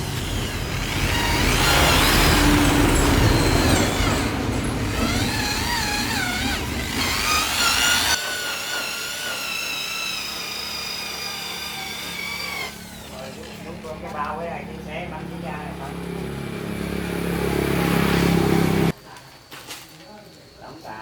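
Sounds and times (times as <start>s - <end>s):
electric polisher whining: 0.0s - 13.7s.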